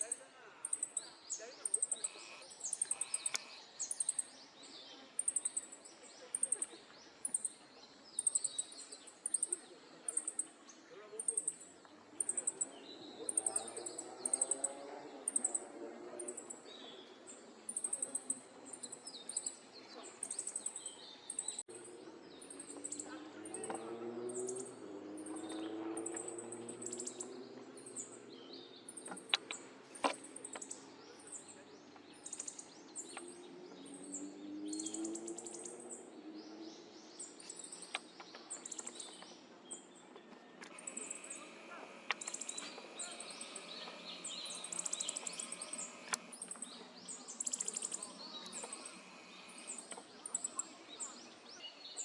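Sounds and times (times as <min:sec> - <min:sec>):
faint bird chirps: 0:00.0 - 0:52.0.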